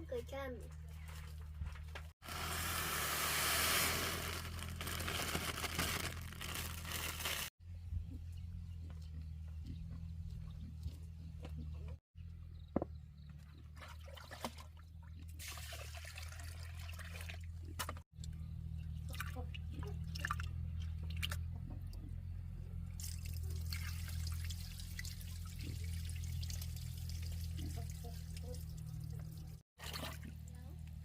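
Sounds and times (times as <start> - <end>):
small knocks and splashes: 13.7 - 18.0, 23.0 - 30.6
water pouring and trickling: 13.8 - 18.0, 23.0 - 30.6.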